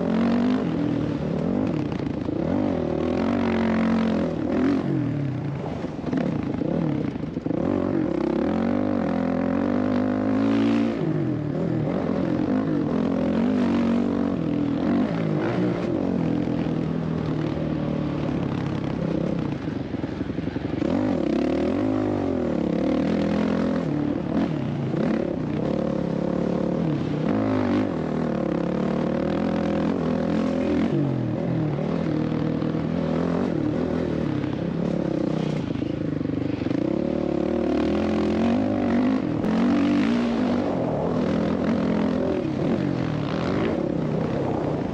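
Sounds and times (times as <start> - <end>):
dirt bike engine revving: 0.0 - 5.1, 7.5 - 16.2, 36.6 - 44.9.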